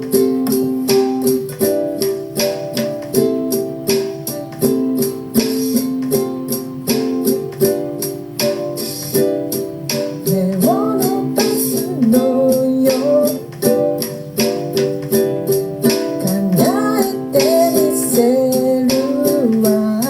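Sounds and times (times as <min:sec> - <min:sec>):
ukulele strumming: 0:00.0 - 0:20.0
person singing: 0:10.0 - 0:14.0, 0:15.8 - 0:20.0.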